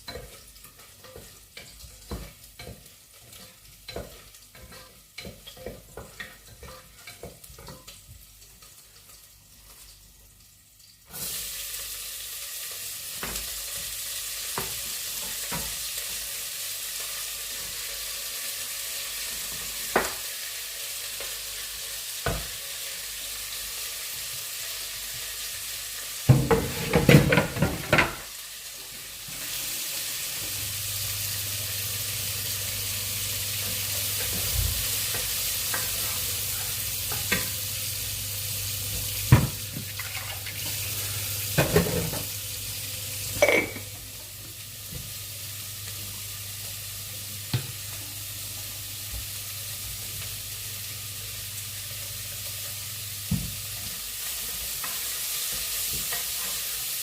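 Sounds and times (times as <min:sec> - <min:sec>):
oil sizzling in a frying pan: 0:00.0 - 0:57.0.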